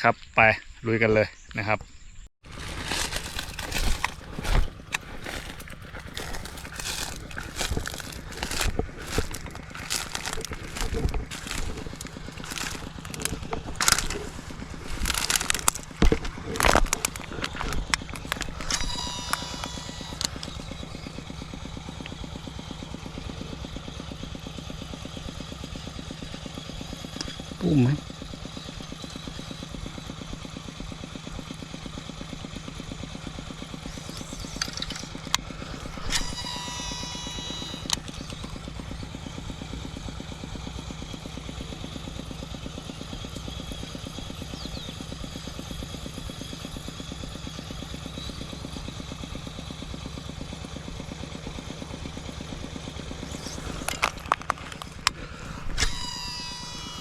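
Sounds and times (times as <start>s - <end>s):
small engine running: 2.4s - 57.0s
clicking and high whirring: 2.6s - 23.4s, 33.4s - 41.3s, 51.4s - 57.0s.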